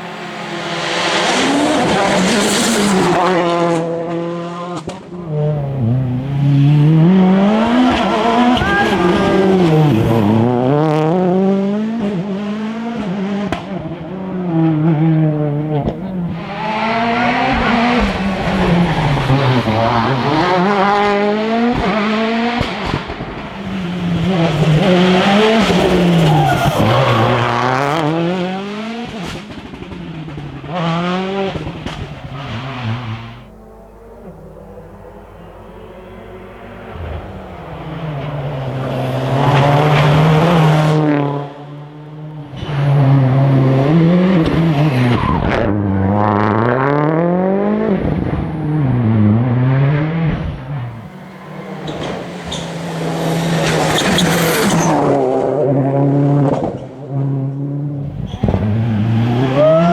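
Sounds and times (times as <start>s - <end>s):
rally car engines revving: 0.0s - 59.9s
tyre squeal: 7.6s - 10.3s, 23.4s - 28.0s, 50.8s - 55.4s, 58.1s - 59.9s.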